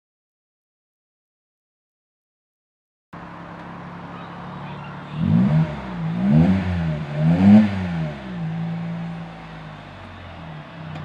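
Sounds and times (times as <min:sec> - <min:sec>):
car engine idling and revving: 0:03.2 - 0:11.0.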